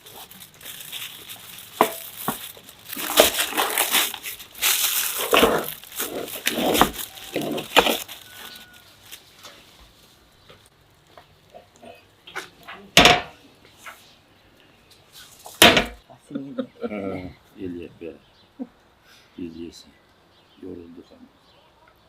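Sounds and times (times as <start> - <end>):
rustling and crinkling handling noise: 0.0 - 16.0.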